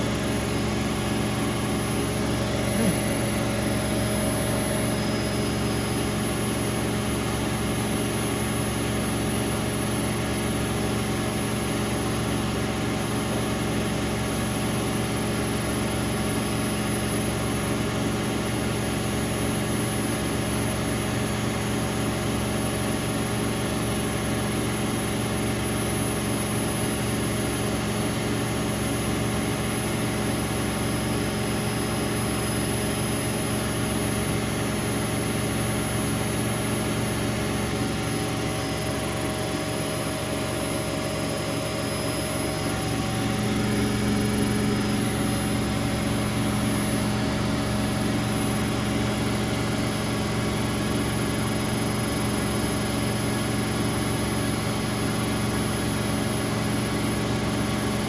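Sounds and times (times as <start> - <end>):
washing machine spinning: 0.0 - 58.0.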